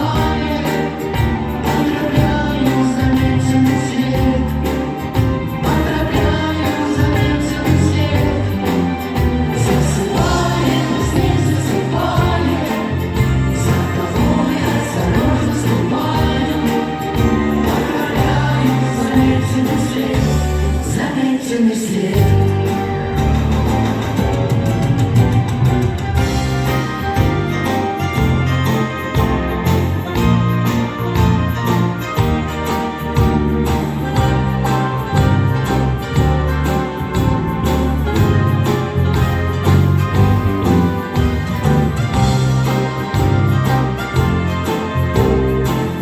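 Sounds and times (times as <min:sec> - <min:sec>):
bass notes: 0:00.0 - 0:21.1, 0:22.2 - 0:46.0
voices singing together: 0:00.0 - 0:22.6
live pop band playing: 0:00.0 - 0:46.0.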